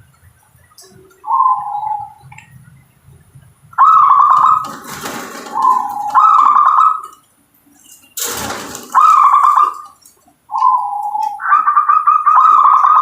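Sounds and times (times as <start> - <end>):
dove cooing: 0.8 - 2.8, 3.8 - 7.2, 8.4 - 13.0.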